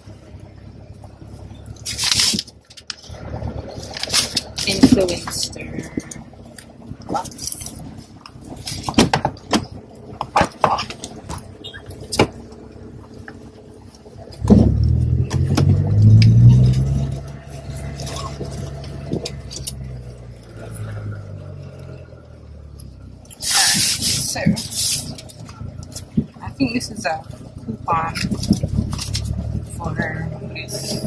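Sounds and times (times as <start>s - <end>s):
car engine starting and idling: 0.0s - 31.0s
seat belt clicks and rattles: 1.8s - 3.2s, 3.8s - 12.6s, 14.3s - 20.1s, 22.8s - 31.0s.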